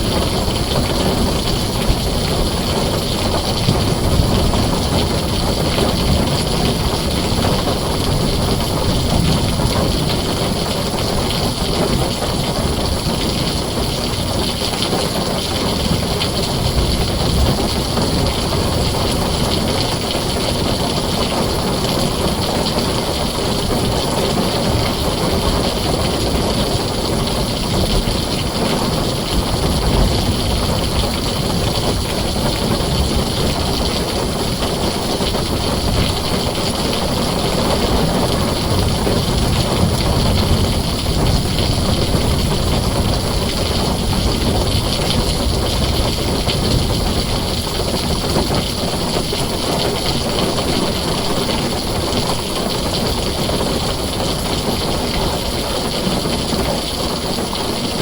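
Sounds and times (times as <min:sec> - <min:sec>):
heavy rain on a tin roof: 0:00.0 - 0:58.0.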